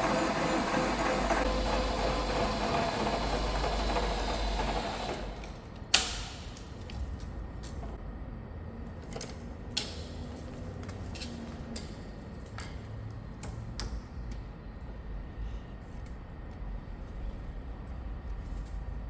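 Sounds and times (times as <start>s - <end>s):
milling machine cutting steel: 0.0s - 5.6s.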